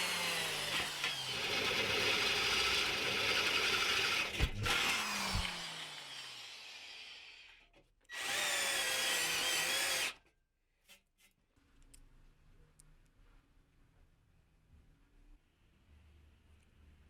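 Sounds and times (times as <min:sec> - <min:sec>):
electric drill whining: 0:00.0 - 0:10.2.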